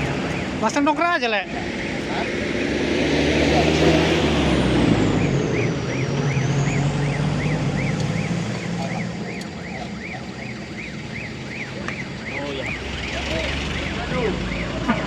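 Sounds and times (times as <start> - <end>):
vehicle engine running low: 0.0 - 15.0
electronic warble chirps: 1.6 - 14.8.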